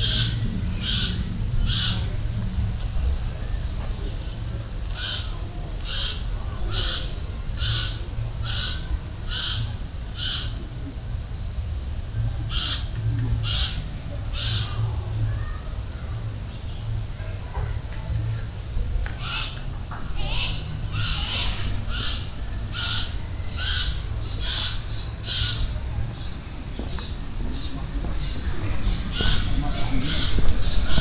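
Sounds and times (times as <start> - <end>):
short harsh bird calls: 20.2 - 25.8.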